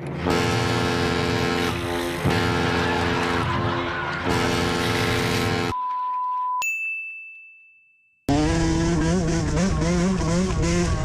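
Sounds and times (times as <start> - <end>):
bright ding: 6.0 - 8.2
dirt bike engine revving: 8.3 - 11.0.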